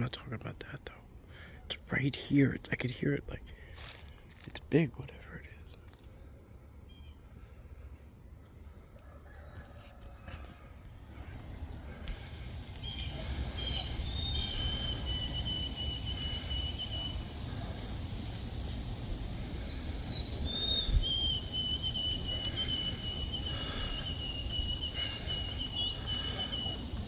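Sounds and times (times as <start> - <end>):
steady low rumble: 0.0 - 8.9, 10.8 - 27.0
birds singing in trills: 6.6 - 27.0.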